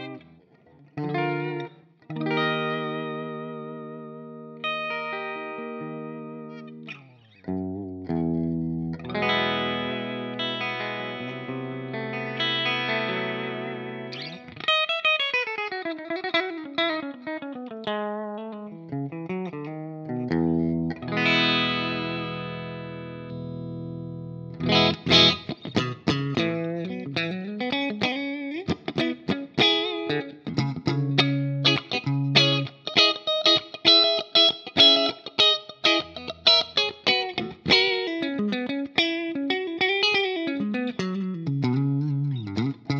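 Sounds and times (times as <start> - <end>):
distorted electric guitar: 0.0 - 42.9.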